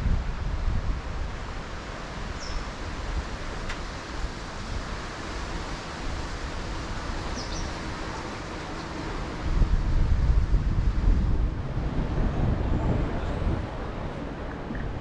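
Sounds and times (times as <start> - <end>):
wind on microphone: 0.0 - 1.8, 6.0 - 15.0
street noise: 1.0 - 15.0.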